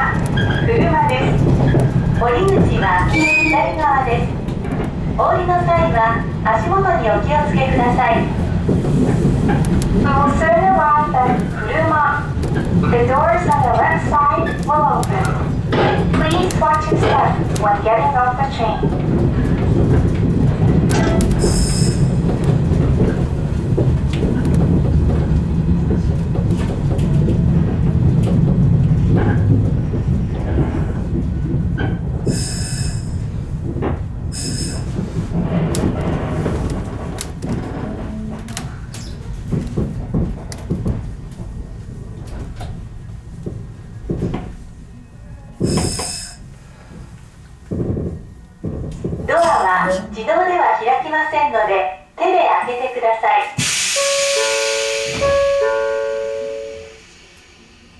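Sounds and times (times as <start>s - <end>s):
electric train rumbling on rails: 0.0s - 57.9s
short loud hiss: 53.6s - 57.9s
high squeal: 53.7s - 57.9s.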